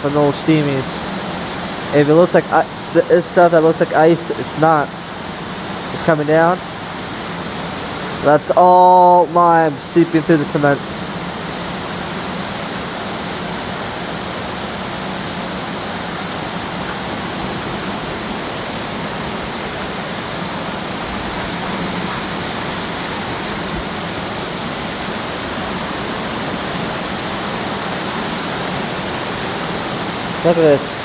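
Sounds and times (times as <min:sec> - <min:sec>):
running water rushing: 0:00.0 - 0:31.0.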